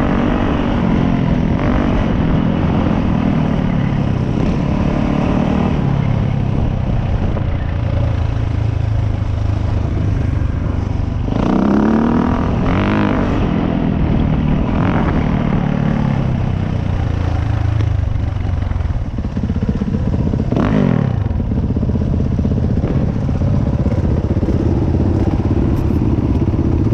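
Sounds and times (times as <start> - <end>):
dirt bike engine revving: 11.3 - 13.7.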